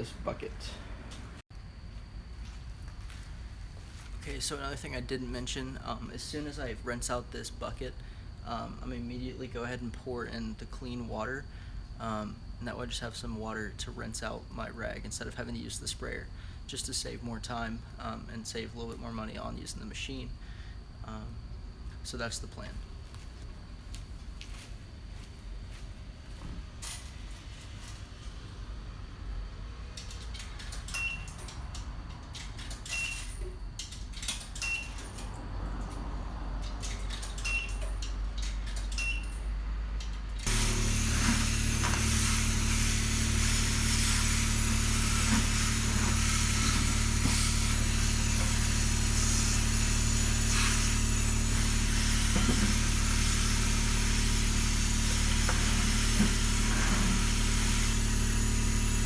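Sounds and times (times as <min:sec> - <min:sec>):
pump humming: 0:40.4 - 0:59.0
rinse spray hissing: 0:40.5 - 0:54.1.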